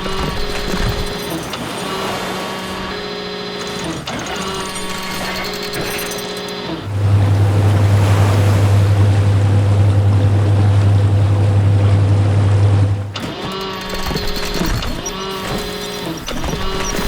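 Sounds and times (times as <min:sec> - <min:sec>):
low machine drone: 0:00.0 - 0:13.2.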